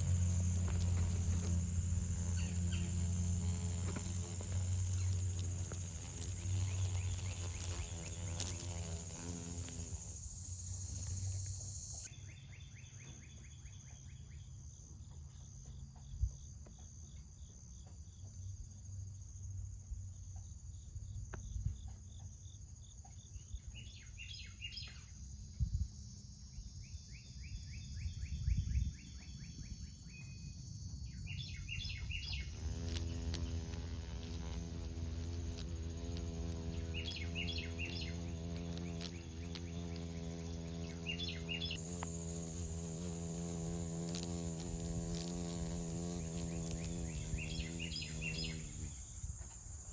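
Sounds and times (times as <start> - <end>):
high-pitched insect drone: 0.0 - 12.6, 24.4 - 49.9
pulsing insect trill: 0.0 - 15.5, 22.4 - 49.9
bird chirps: 36.6 - 41.8.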